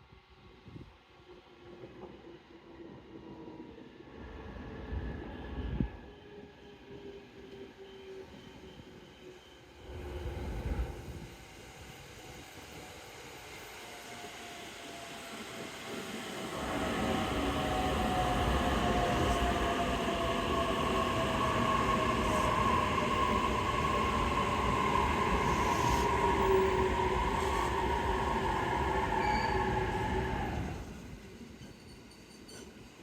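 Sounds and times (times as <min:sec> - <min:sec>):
train wheels on rails: 0:07.4 - 0:33.0.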